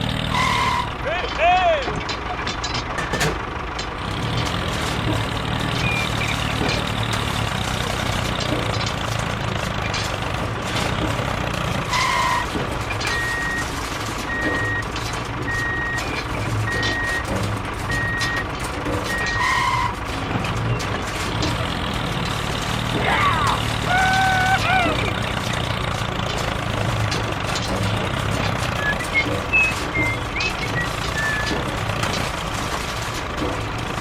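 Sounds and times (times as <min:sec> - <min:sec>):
vehicle engine running: 0:00.0 - 0:34.0
horn honk: 0:00.3 - 0:01.0
reversing alarm beeps: 0:13.1 - 0:13.7, 0:14.3 - 0:17.3, 0:17.9 - 0:18.4, 0:19.1 - 0:19.9.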